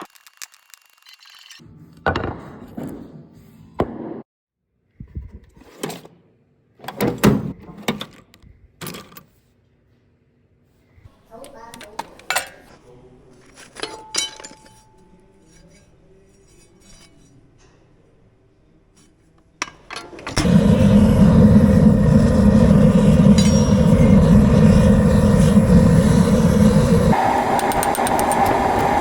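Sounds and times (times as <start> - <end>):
forge burner roaring: 20.2 - 29.0.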